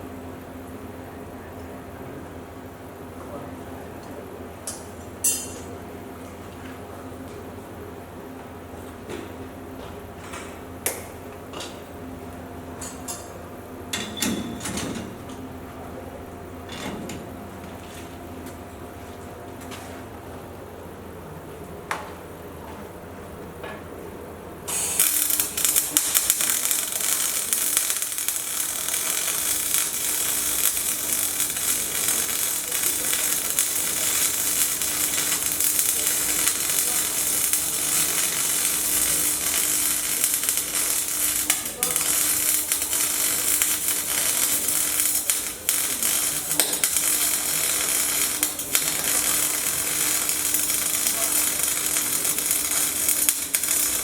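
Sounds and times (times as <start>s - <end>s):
welding arc crackling sizzle: 24.7s - 54.0s.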